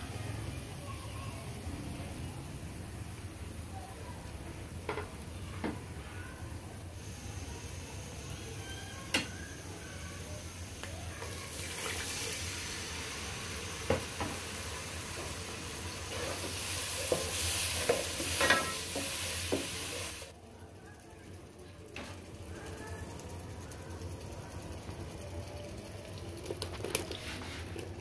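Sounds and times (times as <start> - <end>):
masala sizzling in oil: 0.1 - 28.0.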